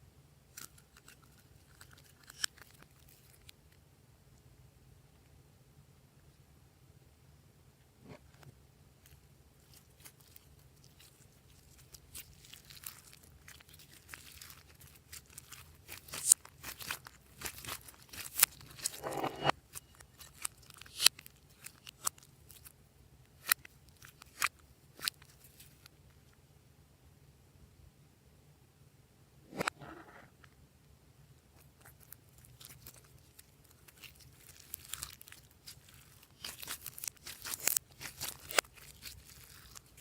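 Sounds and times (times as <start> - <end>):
slime sticky pops and crackles: 11.0 - 19.0, 19.7 - 22.7, 31.9 - 40.0.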